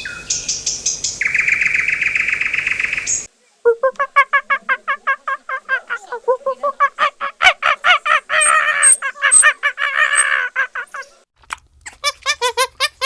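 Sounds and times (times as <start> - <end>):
waterfowl honking: 6.6 - 11.0.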